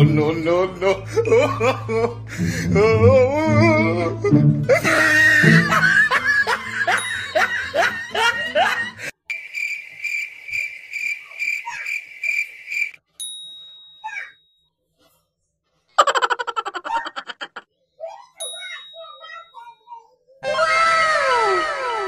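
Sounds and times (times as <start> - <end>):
music: 0.0 - 9.1
laughter: 1.1 - 2.3, 4.6 - 9.1, 15.9 - 17.7.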